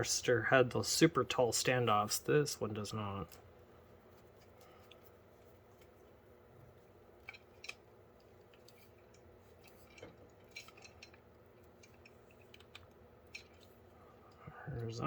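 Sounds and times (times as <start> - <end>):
small metal parts clinking: 7.2 - 12.7.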